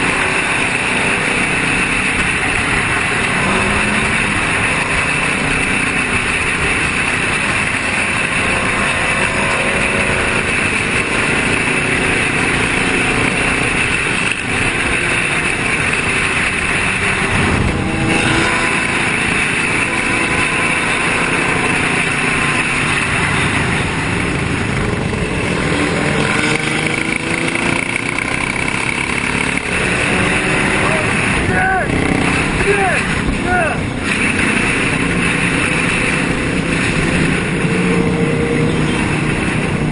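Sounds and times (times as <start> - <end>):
motorcycle engines revving: 0.0 - 39.9
steady dense noise: 0.0 - 39.9.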